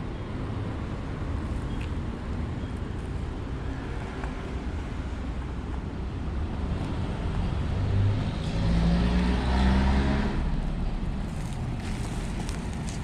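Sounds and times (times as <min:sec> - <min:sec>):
motor vehicle driving past: 0:07.4 - 0:12.7.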